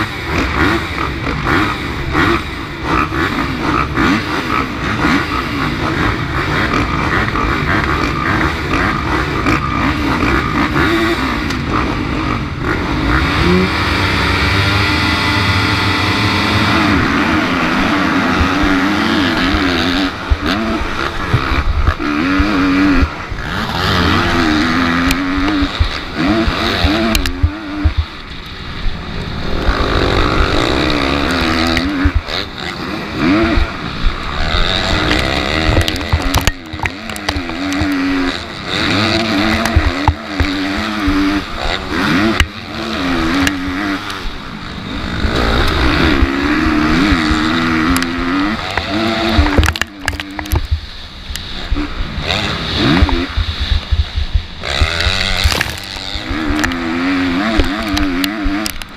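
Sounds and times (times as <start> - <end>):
dirt bike engine revving: 0.0 - 58.9
rushing noise: 27.4 - 36.0.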